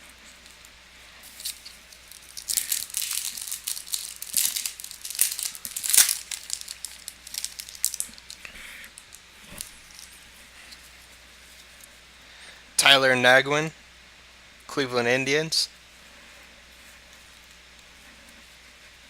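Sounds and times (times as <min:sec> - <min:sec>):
foil wrapper tearing and crinkling: 0:01.2 - 0:10.2.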